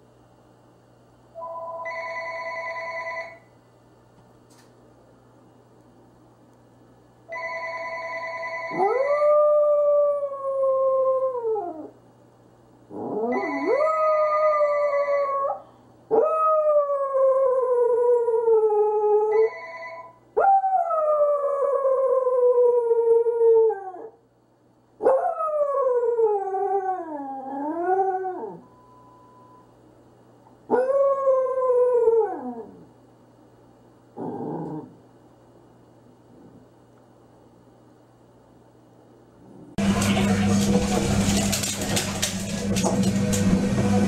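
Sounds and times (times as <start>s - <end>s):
dog howling: 8.8s - 11.9s, 25.1s - 28.6s.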